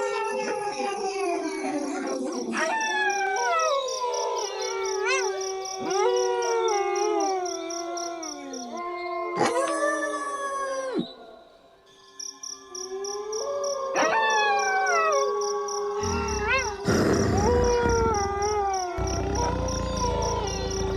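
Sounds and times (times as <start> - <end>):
wolves howling: 0.0 - 11.4, 12.9 - 20.9
high-pitched pulsing: 16.0 - 20.9.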